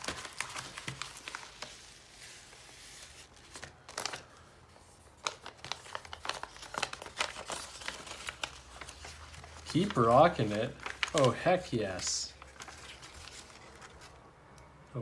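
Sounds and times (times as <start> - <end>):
packaging tearing: 0.0 - 1.8, 5.2 - 14.2
packaging crinkling and rustling: 0.0 - 14.3.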